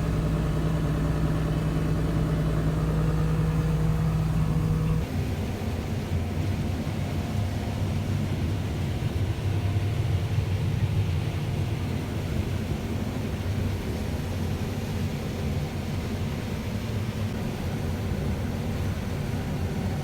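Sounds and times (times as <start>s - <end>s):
heavy diesel engine droning: 0.0s - 5.0s.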